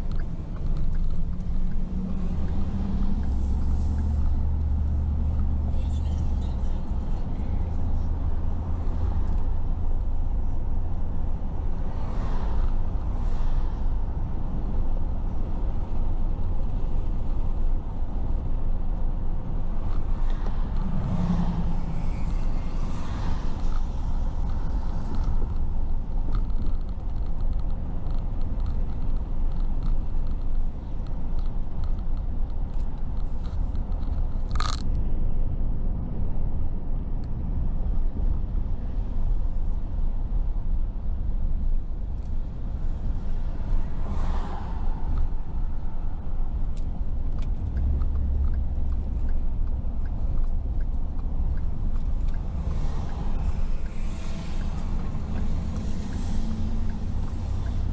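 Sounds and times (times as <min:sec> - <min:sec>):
car road and engine rumble: 0:00.0 - 0:57.9.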